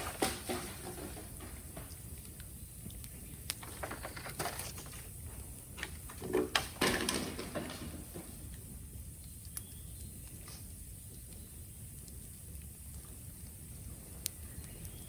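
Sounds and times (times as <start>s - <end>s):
bamboo bonfire crackling: 0.0s - 15.0s
sharp pops and snaps: 1.9s - 4.0s, 8.5s - 13.6s.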